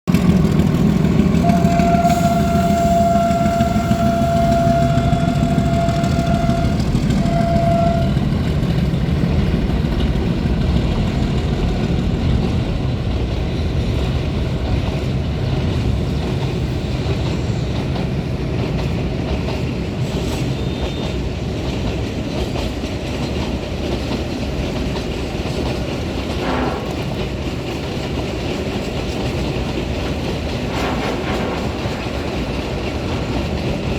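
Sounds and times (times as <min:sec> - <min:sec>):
freight train rumbling: 0:00.1 - 0:33.9
train horn blasts: 0:01.2 - 0:08.5, 0:26.4 - 0:27.4.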